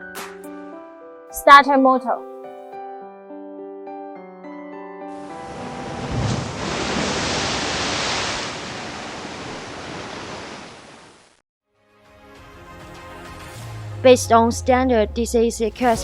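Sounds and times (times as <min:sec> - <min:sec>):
faint background music: 0:13.6 - 0:16.0.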